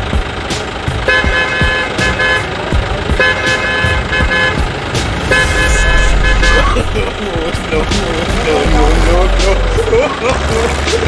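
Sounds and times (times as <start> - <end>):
vehicle horn honking: 1.1 - 2.5, 3.2 - 7.0
low rumble with knocks: 4.6 - 9.8.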